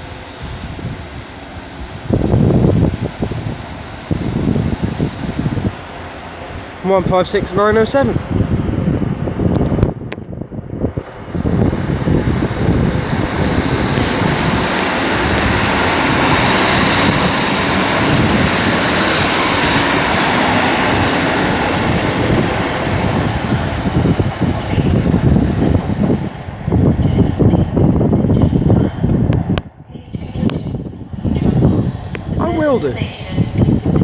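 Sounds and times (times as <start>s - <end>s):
train passing close by: 0.0s - 34.0s
wind rumble on microphone: 0.0s - 34.0s.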